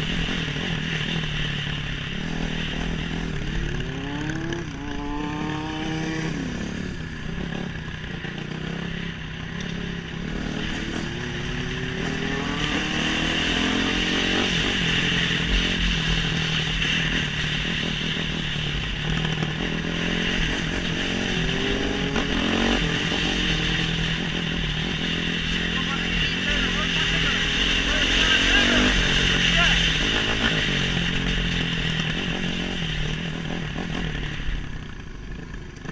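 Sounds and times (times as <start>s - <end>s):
motorcycle engine accelerating: 0.0s - 35.9s.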